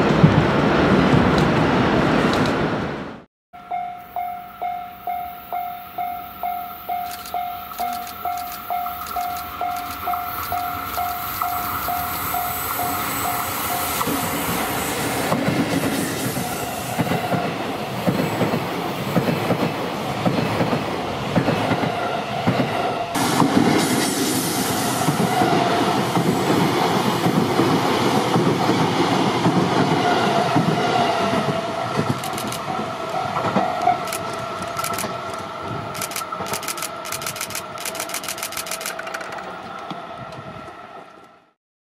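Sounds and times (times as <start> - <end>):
train rumbling past: 0.0 - 41.6
wheels clacking over rail joints: 30.6 - 40.5.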